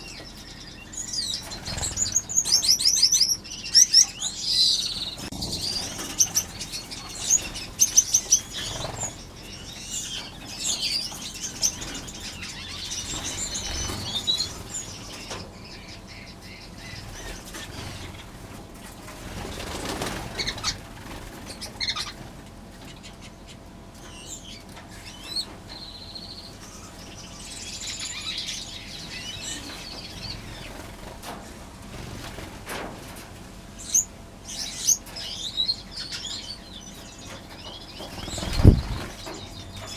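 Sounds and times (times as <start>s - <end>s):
finches chirping: 0.0s - 18.5s, 19.2s - 31.1s, 33.8s - 39.9s
wings fluttering: 0.2s - 16.2s, 16.8s - 23.0s, 28.9s - 34.1s, 37.0s - 39.9s.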